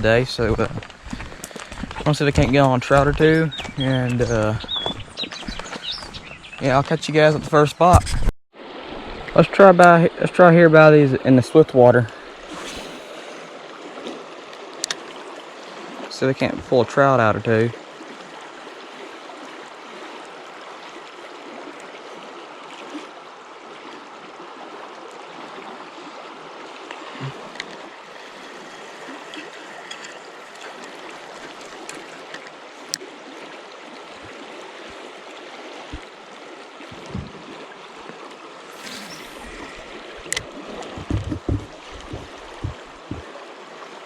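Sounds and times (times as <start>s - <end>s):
faint clicks and knocks: 40.3s - 43.2s.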